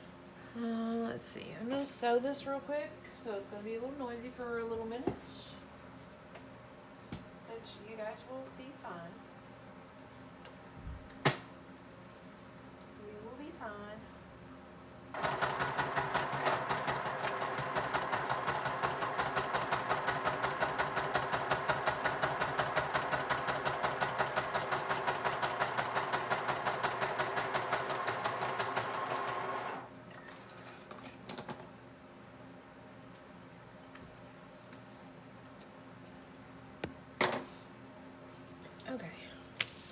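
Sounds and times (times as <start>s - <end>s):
sewing machine stitching through paper: 15.2s - 29.9s.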